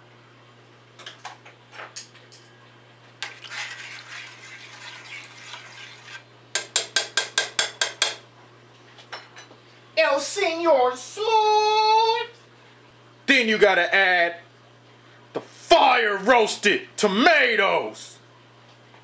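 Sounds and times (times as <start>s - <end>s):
utensil scraping pot: 3.2s - 6.3s
sharp taps on pot: 6.6s - 8.2s.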